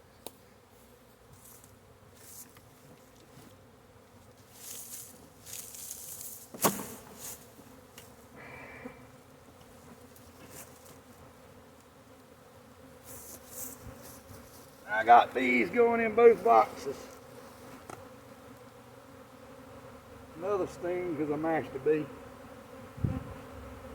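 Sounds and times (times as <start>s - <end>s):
bees buzzing: 0.4s - 23.9s
rustling from handling: 4.4s - 7.5s.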